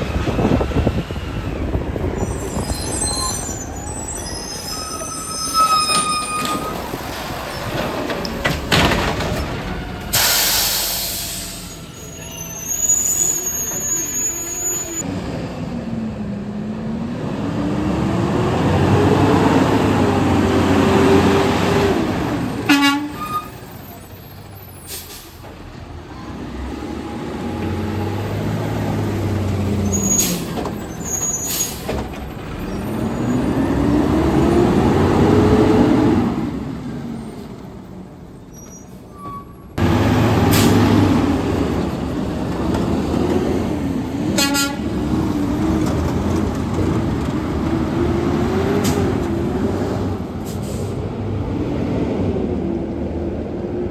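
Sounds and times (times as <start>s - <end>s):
short air hisses: 10.1s - 11.8s
garbage truck engine revving: 39.8s - 51.7s.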